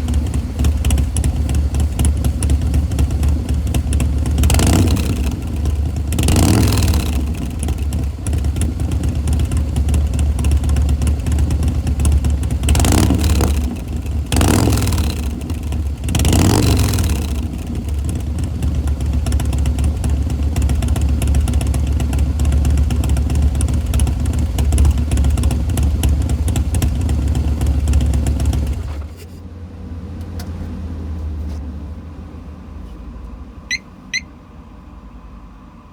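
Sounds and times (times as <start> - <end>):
motorcycle engine idling and revving: 0.0 - 34.3
short high chirp: 33.7 - 34.3.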